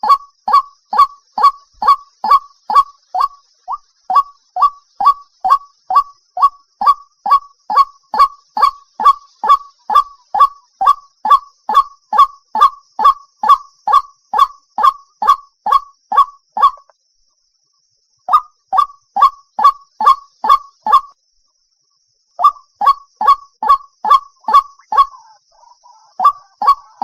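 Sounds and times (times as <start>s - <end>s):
waterhen honking call: 22.4s - 27.0s.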